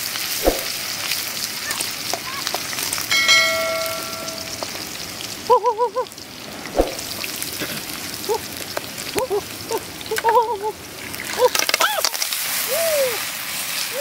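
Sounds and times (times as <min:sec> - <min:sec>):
bright ringing chime: 0:03.1 - 0:04.9
food sizzling in a wok: 0:12.0 - 0:14.0.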